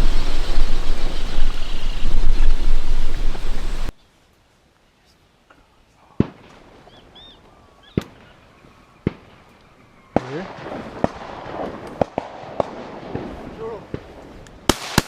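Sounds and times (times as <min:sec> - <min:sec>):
shotgun shots: 0:10.2 - 0:14.0, 0:14.7 - 0:15.0.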